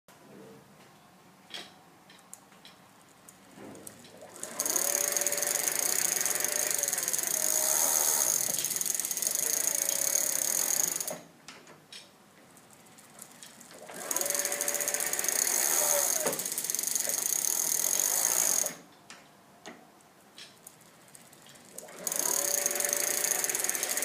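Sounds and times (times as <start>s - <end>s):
electric motor whine: 4.4s - 11.1s, 14.0s - 16.5s, 21.9s - 24.0s.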